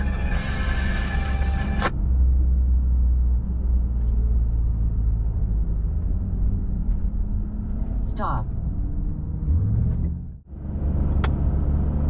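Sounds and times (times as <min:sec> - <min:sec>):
buzzy tone: 0:00.0 - 0:01.8.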